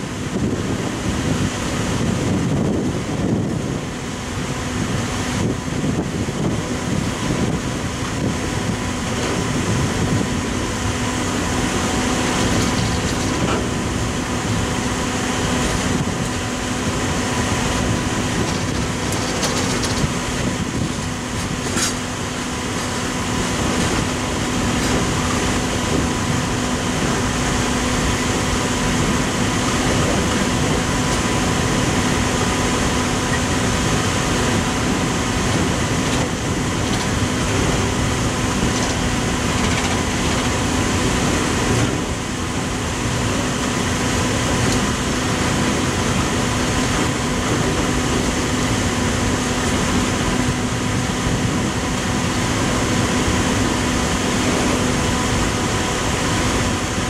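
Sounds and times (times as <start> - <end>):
steady humming tone: 0.0 - 57.0
train wheels clattering on rails: 11.9 - 14.6, 17.4 - 26.2, 34.3 - 42.2, 43.0 - 48.4.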